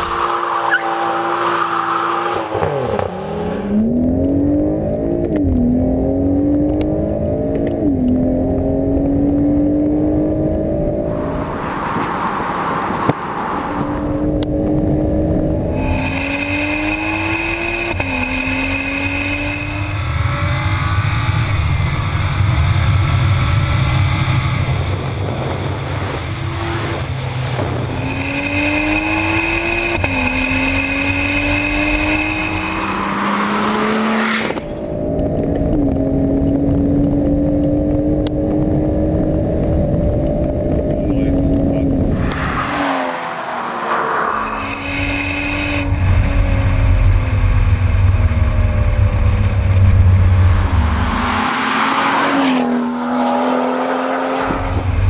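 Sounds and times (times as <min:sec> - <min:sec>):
car engine accelerating through gears: 0:00.0 - 0:55.0.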